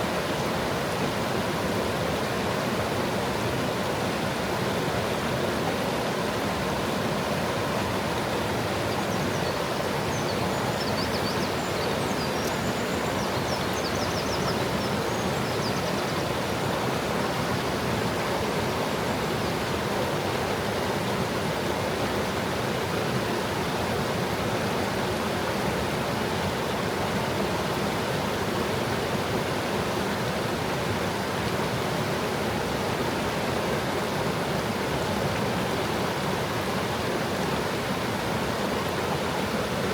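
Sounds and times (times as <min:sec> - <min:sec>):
stream babbling over stones: 0:00.0 - 0:39.9
faint bird twittering: 0:09.0 - 0:16.3.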